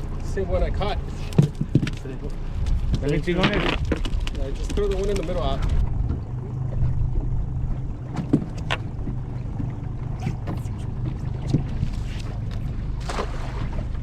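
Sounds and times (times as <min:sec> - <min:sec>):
boat motor humming: 0:00.0 - 0:14.0
sharp knocks and clicks: 0:01.3 - 0:02.3.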